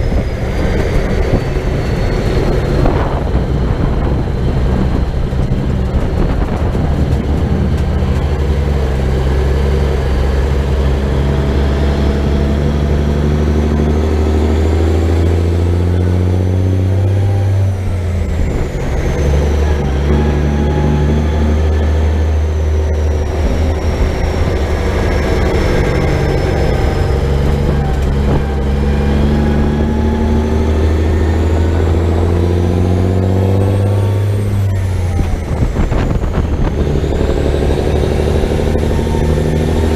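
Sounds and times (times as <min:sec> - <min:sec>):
truck diesel engine under load: 0:00.0 - 0:39.9.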